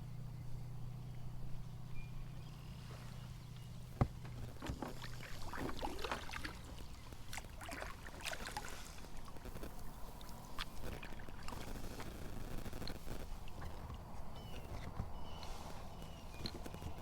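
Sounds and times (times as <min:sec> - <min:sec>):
low steady hum: 0:00.0 - 0:17.0
gear knocking against kayak hull: 0:03.7 - 0:07.4.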